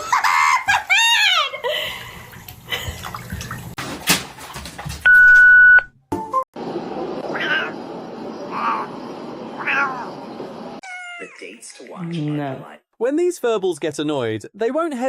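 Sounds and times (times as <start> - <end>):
splashing: 0.7 - 5.1.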